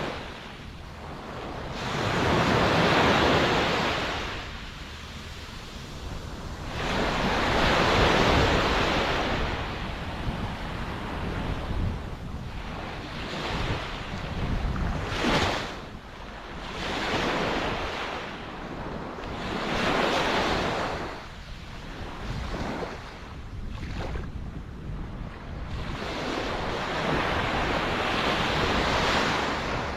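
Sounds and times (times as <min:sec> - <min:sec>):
ocean waves breaking: 0:00.0 - 0:18.3
wind rumble on microphone: 0:00.0 - 0:29.9.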